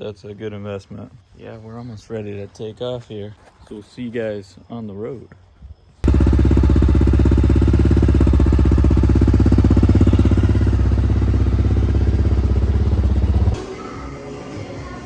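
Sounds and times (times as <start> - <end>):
motorcycle engine running: 6.0 - 13.6.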